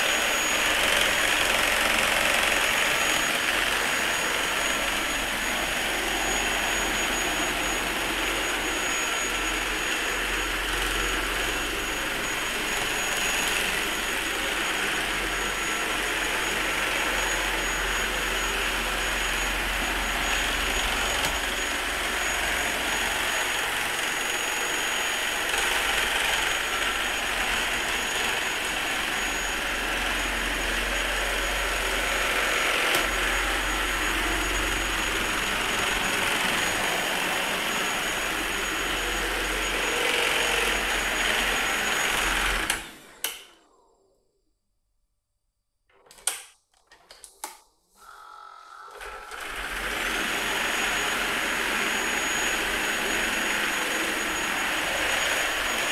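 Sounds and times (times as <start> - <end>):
vacuum cleaner running: 0.0 - 43.5, 48.8 - 55.9.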